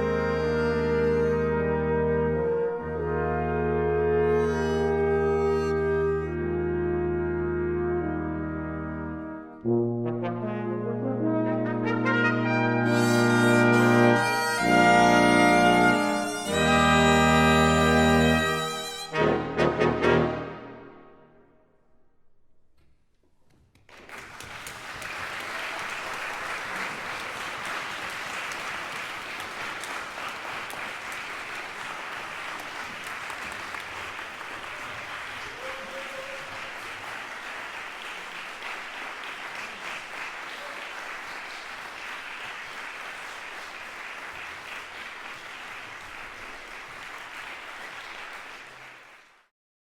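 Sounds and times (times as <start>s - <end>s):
audience applause: 23.7s - 49.5s.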